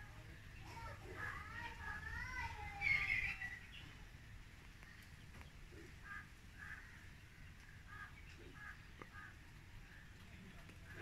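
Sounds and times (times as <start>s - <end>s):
faint short bird calls: 4.8s - 10.0s.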